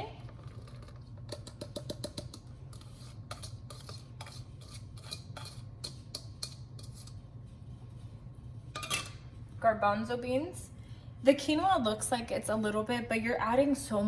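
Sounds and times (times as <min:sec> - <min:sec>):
utensil tapping against dish: 0:01.3 - 0:02.5.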